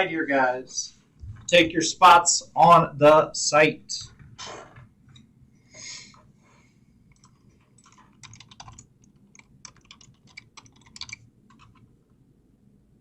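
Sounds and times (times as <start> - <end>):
typing on computer keyboard: 7.1 - 11.9.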